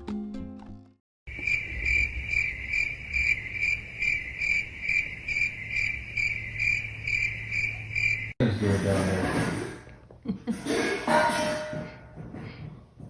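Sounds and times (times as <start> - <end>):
cricket chirping: 1.3 - 8.4.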